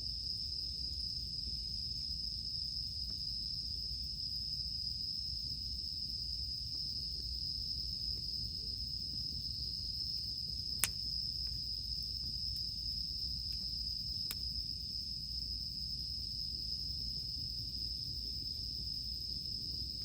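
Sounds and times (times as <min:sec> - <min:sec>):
cicadas droning: 0:00.0 - 0:20.0
campfire crackling: 0:09.2 - 0:14.8.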